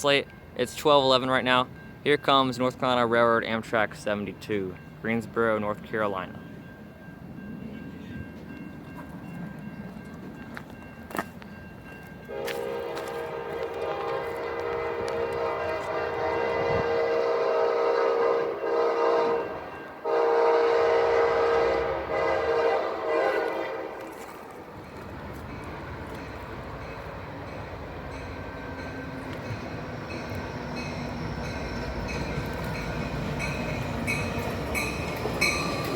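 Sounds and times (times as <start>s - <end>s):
train running past: 0.0s - 35.9s
train air horn blasts: 12.3s - 24.4s.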